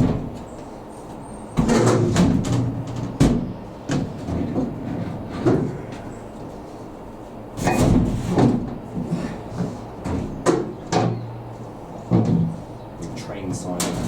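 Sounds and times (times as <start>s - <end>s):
metal cabinet knocks and clatters: 1.6s - 5.7s, 7.6s - 8.8s.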